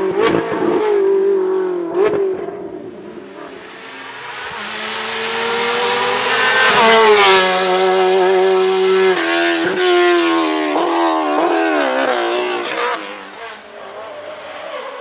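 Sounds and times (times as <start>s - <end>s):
race car engine at full throttle: 0.0s - 15.0s.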